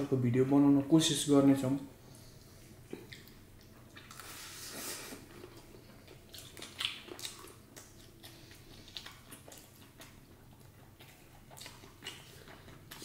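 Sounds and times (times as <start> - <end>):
chewing and mouth smacks: 2.6 - 4.4, 5.1 - 13.0.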